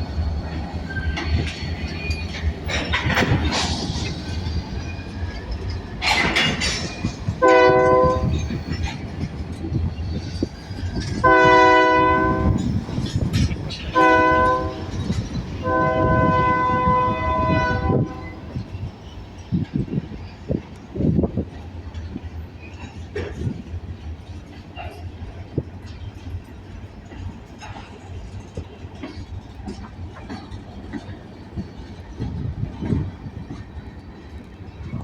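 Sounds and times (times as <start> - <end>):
train rumbling: 0.0 - 35.0
locomotive air horn blasts: 7.4 - 8.4, 11.2 - 12.7, 13.9 - 18.5.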